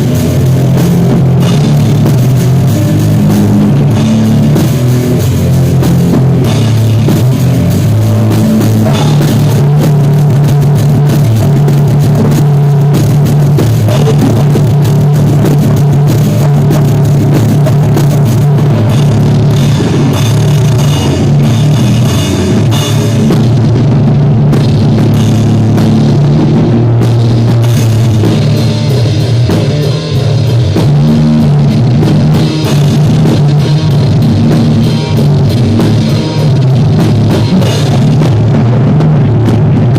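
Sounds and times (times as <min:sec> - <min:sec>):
bass guitar: 0:00.0 - 0:39.9
distorted guitar: 0:00.0 - 0:39.9
drum kit: 0:00.0 - 0:39.9.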